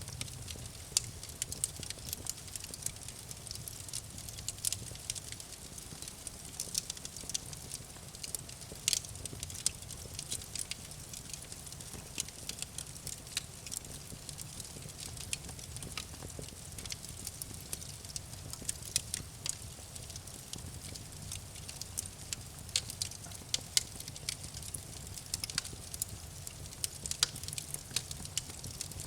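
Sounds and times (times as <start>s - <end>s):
campfire crackling: 0.0s - 29.0s.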